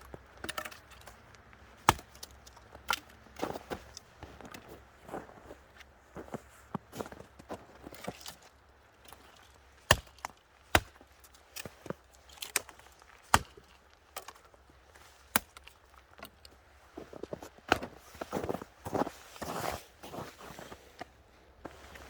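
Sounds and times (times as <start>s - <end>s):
twigs cracking and snapping: 0.0s - 4.1s
axe striking wood: 1.8s - 2.3s, 9.9s - 11.0s.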